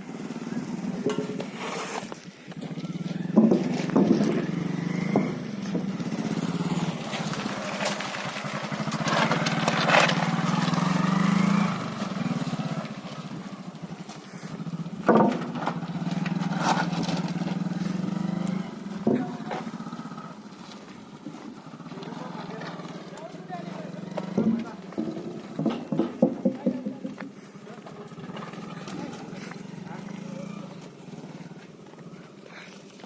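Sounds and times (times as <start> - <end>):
vehicle engine running: 0.0 - 33.0
sharp knocks or clatters: 24.3 - 27.2.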